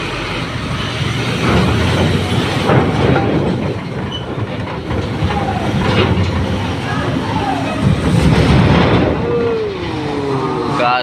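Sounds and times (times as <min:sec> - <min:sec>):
diesel truck engine rumbling: 0:00.0 - 0:11.0
rig rattling clatter: 0:00.5 - 0:11.0.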